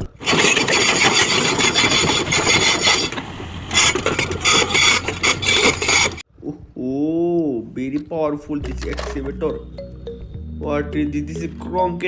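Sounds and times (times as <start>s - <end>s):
plastic toy scraping: 0.2s - 6.2s.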